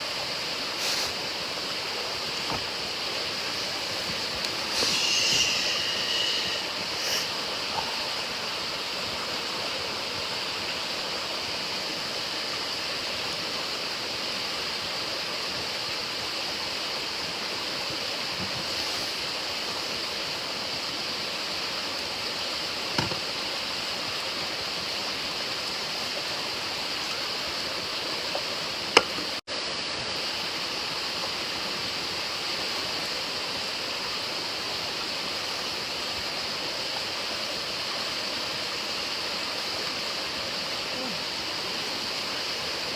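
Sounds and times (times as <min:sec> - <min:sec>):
stream water rushing: 0:00.0 - 0:42.9.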